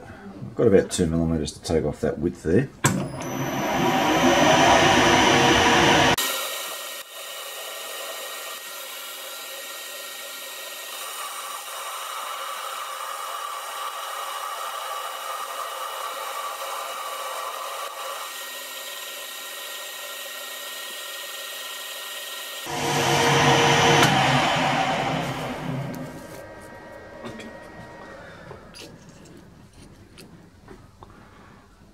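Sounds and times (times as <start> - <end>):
metal lathe running: 3.0 - 7.8, 11.0 - 29.2
lathe tool cutting metal: 3.1 - 29.2.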